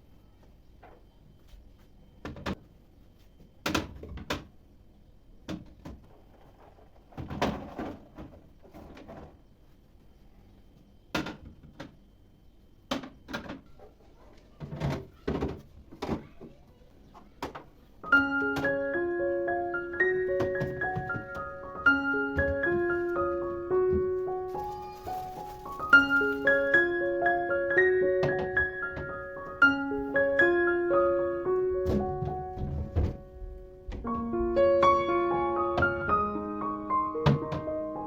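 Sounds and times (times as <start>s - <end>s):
doors and drawers opening shutting: 19.9s - 30.6s, 31.5s - 38.0s.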